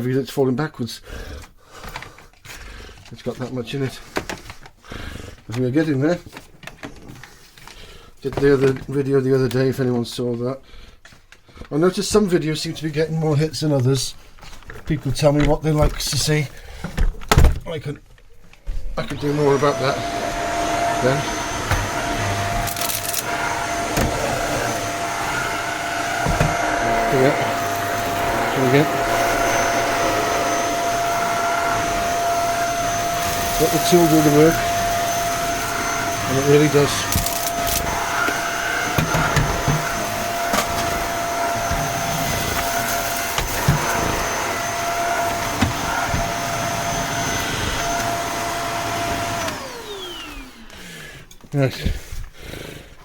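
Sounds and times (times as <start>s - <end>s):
stick vacuum cleaner whine: 18.7s - 51.2s
vacuum head knocking: 20.0s - 36.3s, 37.0s - 46.5s.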